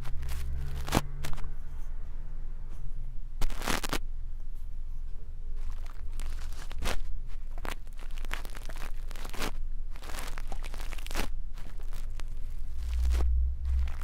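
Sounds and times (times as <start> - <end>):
low rumble: 0.0 - 4.4, 12.1 - 14.0
brush scratching microphone: 10.5 - 14.0.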